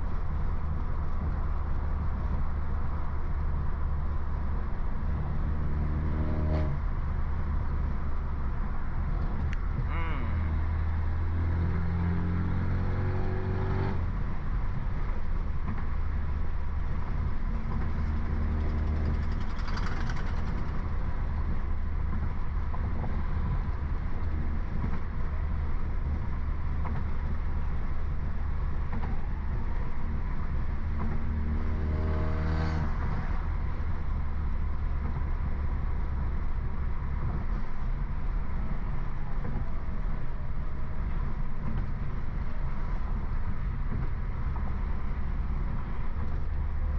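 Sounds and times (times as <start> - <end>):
car engine revving: 4.9 - 7.4, 9.1 - 14.4, 17.1 - 21.9, 30.2 - 34.2.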